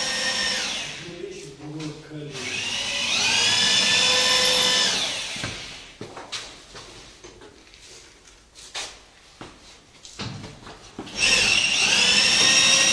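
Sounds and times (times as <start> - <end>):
small electric motor whining: 2.4 - 5.9.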